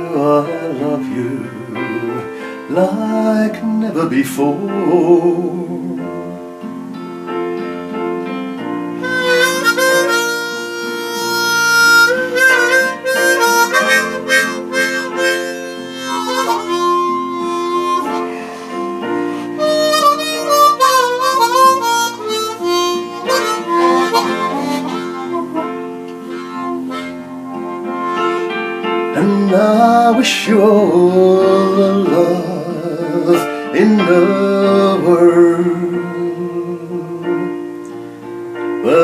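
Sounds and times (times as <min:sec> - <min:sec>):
instrumental accompaniment: 0:00.0 - 0:39.0
harmonica solo: 0:09.0 - 0:29.5.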